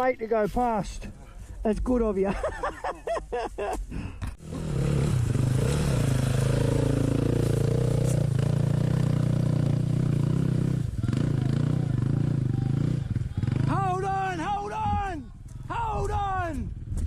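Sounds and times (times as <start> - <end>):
dirt bike engine running: 4.4 - 15.9.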